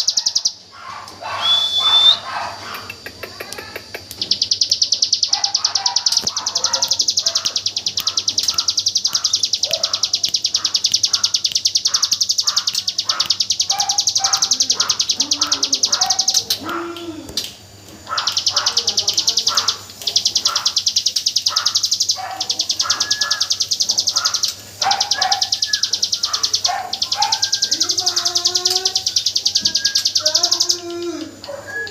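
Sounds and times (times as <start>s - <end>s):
soft chirps and whistles: 1.2s - 2.3s, 4.2s - 16.5s, 18.2s - 31.9s
bird rapid high notes: 4.2s - 16.5s.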